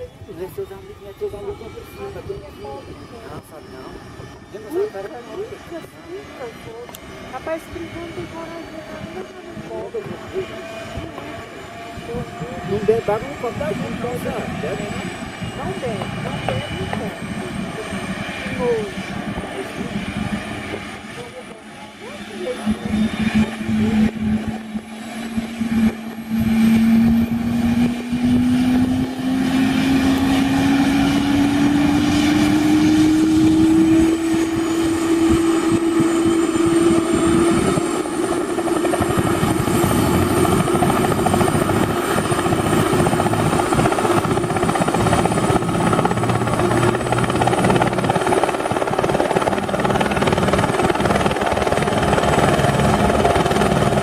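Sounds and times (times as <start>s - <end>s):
helicopter rotor noise: 0.0s - 54.0s
engine tone rising in pitch: 21.2s - 54.0s.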